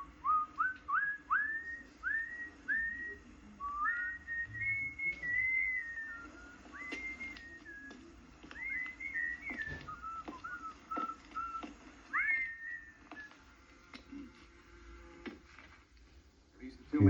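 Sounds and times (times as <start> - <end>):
person whistling a tune: 0.2 - 13.4.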